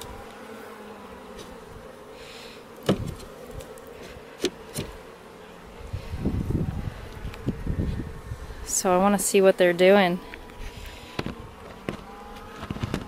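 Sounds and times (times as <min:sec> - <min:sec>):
honey bees buzzing: 0:00.0 - 0:13.0
scraping and rustling: 0:10.4 - 0:13.0.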